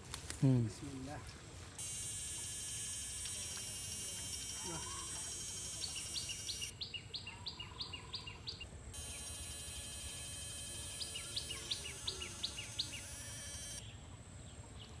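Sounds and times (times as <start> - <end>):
bird chirping: 2.8 - 15.0
shrill high hiss: 8.9 - 13.8.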